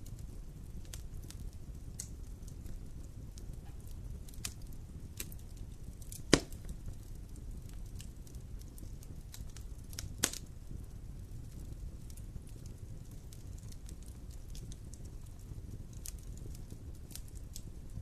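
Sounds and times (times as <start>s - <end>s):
campfire crackling: 0.0s - 18.0s
fire popping: 0.0s - 18.0s.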